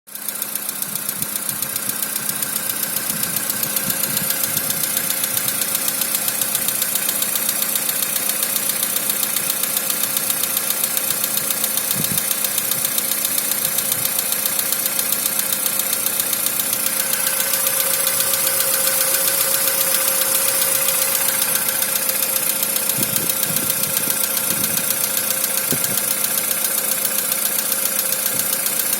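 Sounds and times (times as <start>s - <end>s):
car engine running: 0.1s - 28.9s
rapid even ticking: 0.2s - 28.9s
steady whine: 16.7s - 25.0s.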